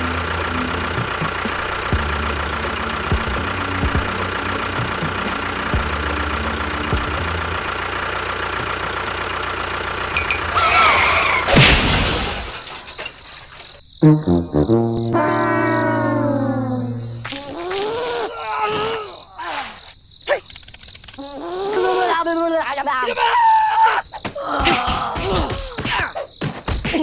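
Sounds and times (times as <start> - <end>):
small engine knocking rattle: 0.0 - 13.8
squeaks: 14.7 - 19.9.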